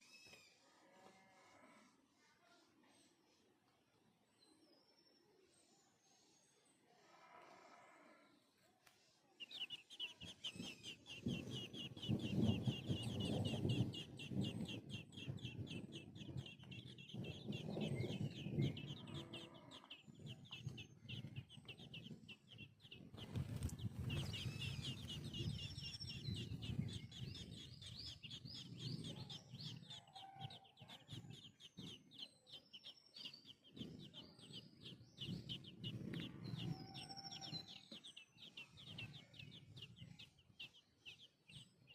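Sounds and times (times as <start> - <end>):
chicks peeping: 9.4 - 41.9
hen clucking: 9.5 - 26.0.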